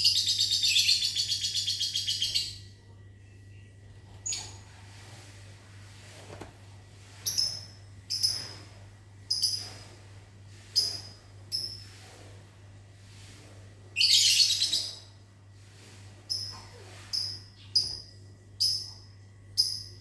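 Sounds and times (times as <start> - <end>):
lovebirds chirping: 0.0 - 2.6.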